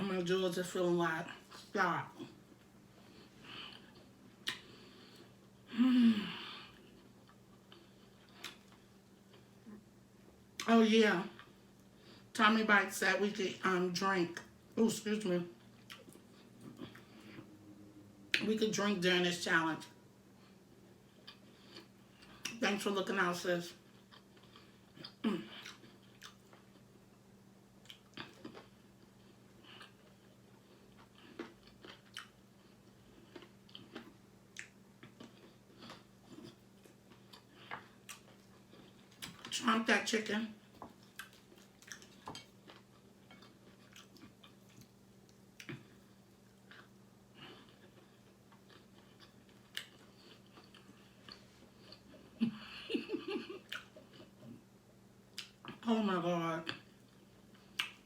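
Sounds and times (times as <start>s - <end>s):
person chewing food: 1.3s - 5.7s, 6.3s - 10.7s, 15.5s - 17.6s, 20.3s - 22.6s, 23.8s - 39.5s, 40.6s - 55.8s, 56.7s - 58.0s
wet mouth clicks: 4.4s - 4.7s, 57.7s - 58.0s.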